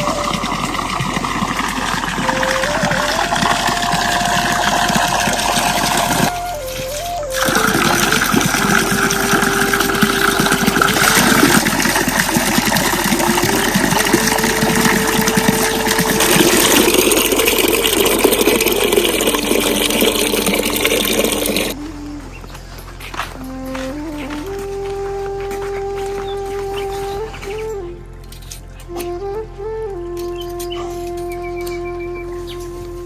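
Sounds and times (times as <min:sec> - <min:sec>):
heavy rain pouring: 0:00.0 - 0:21.8
slow tune of held notes: 0:00.0 - 0:33.0.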